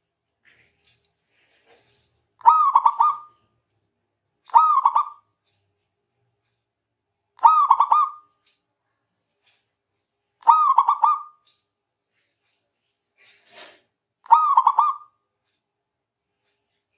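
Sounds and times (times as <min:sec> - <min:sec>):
dove cooing: 0:02.4 - 0:03.3, 0:07.4 - 0:08.2, 0:10.5 - 0:11.4, 0:14.3 - 0:15.1.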